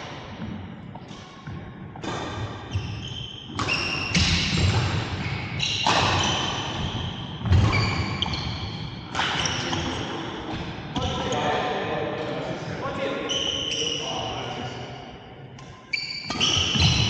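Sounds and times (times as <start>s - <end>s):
racket hitting shuttlecock: 0.3s - 10.4s
shoe squeaks: 2.6s - 10.3s, 13.2s - 14.8s, 15.8s - 17.0s.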